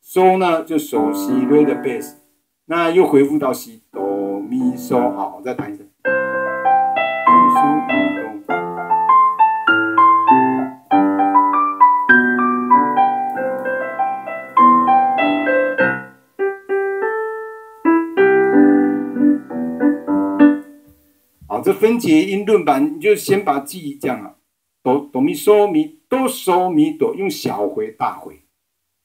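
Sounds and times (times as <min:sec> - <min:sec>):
piano playing broken chords: 0:01.0 - 0:02.2, 0:06.1 - 0:20.9.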